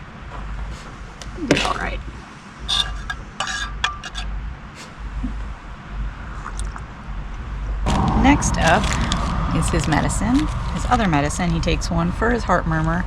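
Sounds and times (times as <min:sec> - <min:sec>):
metal utensils clinking and scraping: 0:02.7 - 0:04.3.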